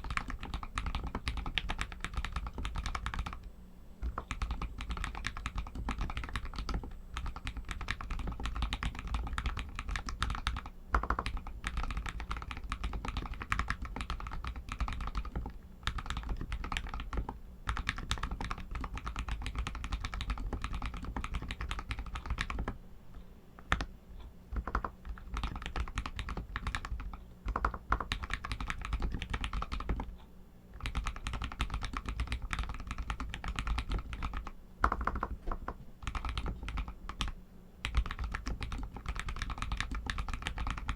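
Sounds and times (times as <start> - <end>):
mechanical keyboard typing: 0.0 - 22.8, 23.6 - 23.9, 24.5 - 30.2, 30.8 - 40.9.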